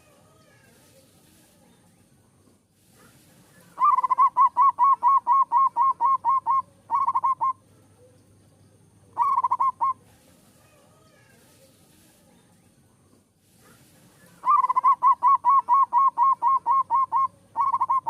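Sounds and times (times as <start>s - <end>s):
dove cooing: 3.6s - 8.1s, 9.1s - 11.3s, 14.2s - 18.0s.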